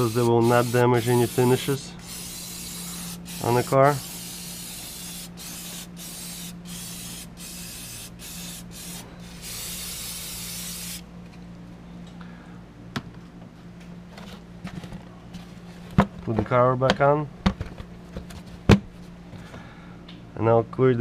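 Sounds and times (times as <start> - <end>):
aerosol can spraying: 0.0 - 11.0
steady low hum: 0.0 - 21.0.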